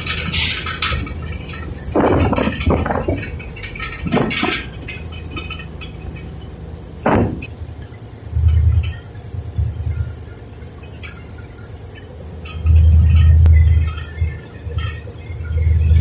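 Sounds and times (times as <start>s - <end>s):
boat engine running: 0.0s - 16.0s
loud low buffet: 0.0s - 16.0s
wind gusting on microphone: 0.9s - 4.9s, 12.7s - 16.0s.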